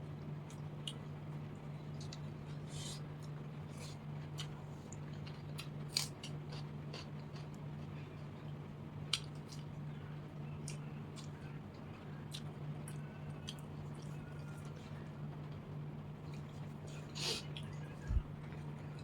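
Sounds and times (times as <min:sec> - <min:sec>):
steady low hum: 0:00.0 - 0:19.0
person chewing crunchy snacks: 0:03.7 - 0:07.6.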